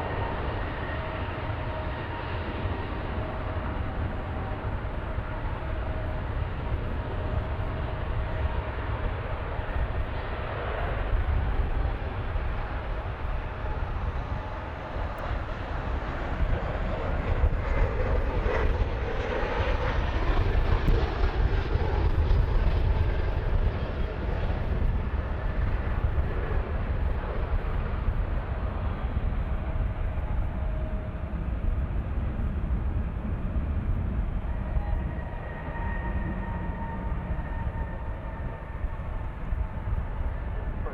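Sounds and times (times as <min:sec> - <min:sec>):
airplane engine passing: 0:00.0 - 0:40.9
steady low rumble: 0:00.0 - 0:40.9.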